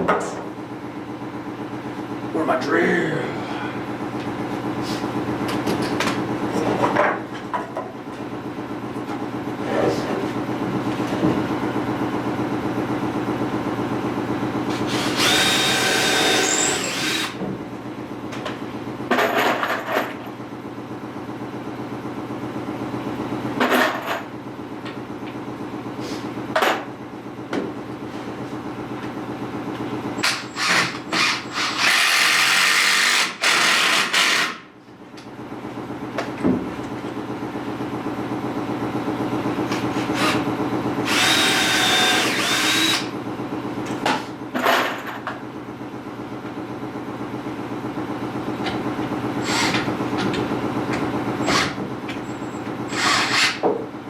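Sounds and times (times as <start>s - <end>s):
steady mechanical hum: 0.0s - 54.0s
power drill driving screws: 14.8s - 17.4s, 30.2s - 34.6s, 40.0s - 40.4s, 41.0s - 43.1s, 49.4s - 49.9s, 51.4s - 51.8s, 52.9s - 53.6s.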